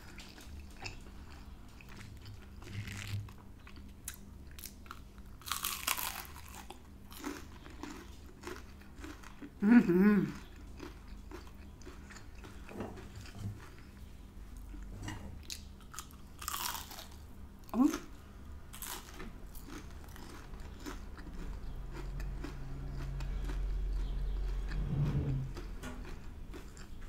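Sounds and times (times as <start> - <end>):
person crunching onion ring: 0.0 - 13.9, 15.8 - 17.3, 18.7 - 24.8
person humming: 9.6 - 10.3.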